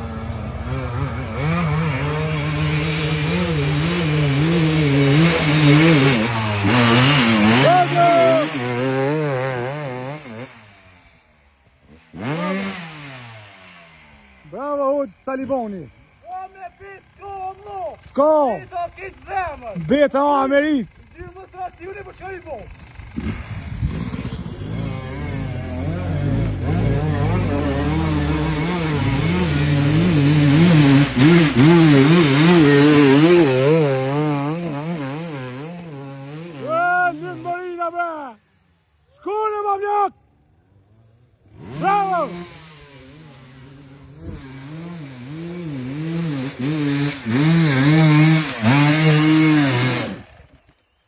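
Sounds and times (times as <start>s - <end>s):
motocross bike engines revving: 0.0s - 51.0s.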